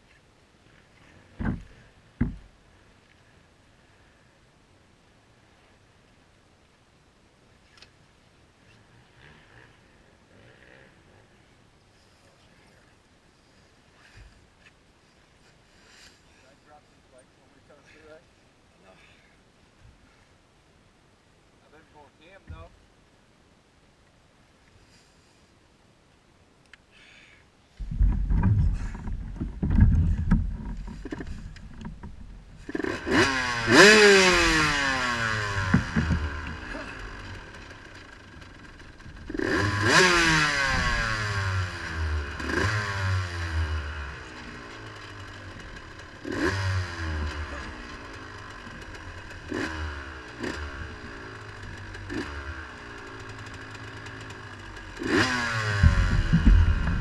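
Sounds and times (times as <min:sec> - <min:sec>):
low rumbling and thumps: 0:01.3 - 0:02.6, 0:27.8 - 0:32.7, 0:34.3 - 0:37.8, 0:55.6 - 0:57.0
engine revving: 0:32.7 - 0:57.0.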